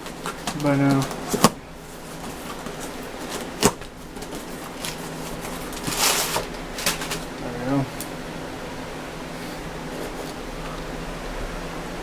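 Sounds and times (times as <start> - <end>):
wrapping tearing rustle: 0.0 - 8.1.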